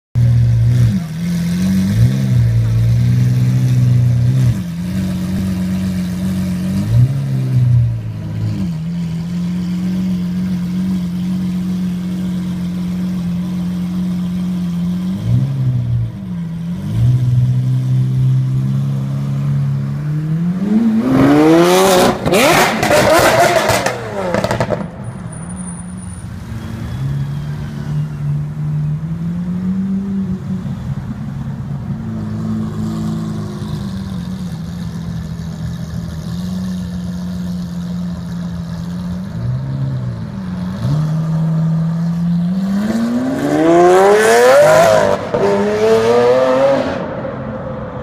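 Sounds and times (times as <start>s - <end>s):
car engine revving and accelerating: 14.2s - 25.7s, 32.1s - 48.0s
car engine idling: 33.8s - 40.6s.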